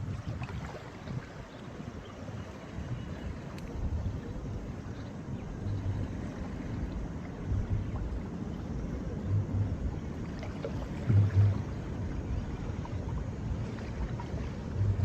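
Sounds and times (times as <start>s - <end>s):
wind on microphone: 0.0s - 15.0s
deep bass thumps from music: 7.5s - 8.0s, 9.2s - 9.9s, 11.1s - 12.0s, 14.8s - 15.0s.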